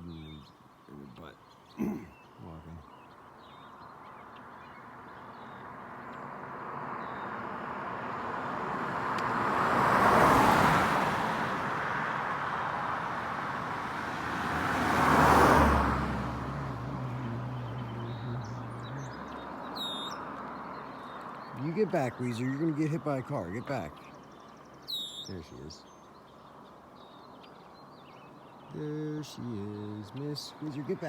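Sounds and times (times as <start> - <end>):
cars passing by: 0.0 - 31.0
low engine hum: 5.6 - 24.0.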